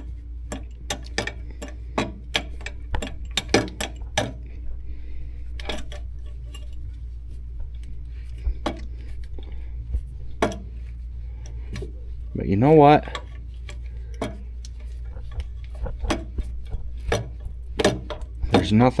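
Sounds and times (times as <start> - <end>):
metal hardware clinking: 0.0 - 4.5, 5.5 - 7.0, 10.3 - 19.0
steady low hum: 0.0 - 19.0.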